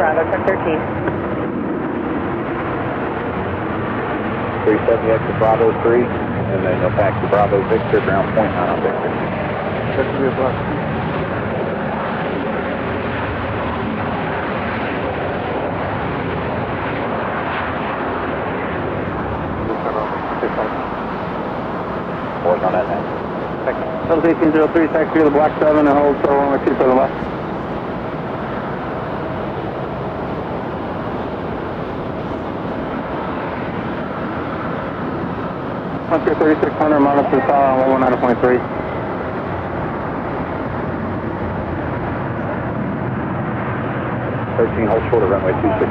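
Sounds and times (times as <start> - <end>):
jet engine rushing: 0.0 - 45.9
faint steady hum: 18.8 - 42.5.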